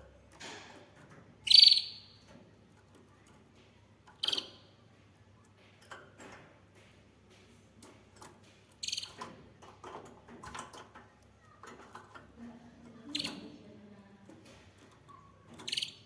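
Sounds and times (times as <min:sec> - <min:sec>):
canary trilling: 0:01.4 - 0:02.2, 0:04.1 - 0:04.7, 0:08.8 - 0:09.3, 0:12.9 - 0:13.6, 0:14.8 - 0:16.0.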